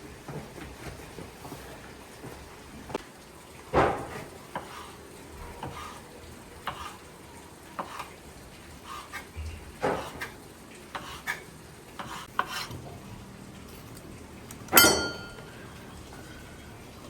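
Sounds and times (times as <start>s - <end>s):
metallic clang: 14.7s - 15.6s
utensils clinking against dishes: 14.7s - 15.8s.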